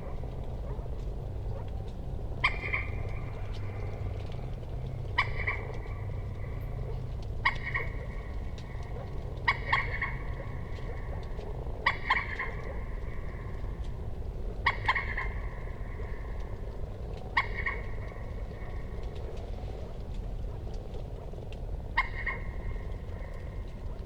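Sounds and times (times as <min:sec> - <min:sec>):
low background hum: 0:00.0 - 0:24.0
moorhen calling: 0:02.4 - 0:13.9, 0:14.6 - 0:16.4, 0:17.3 - 0:18.9, 0:22.0 - 0:23.6.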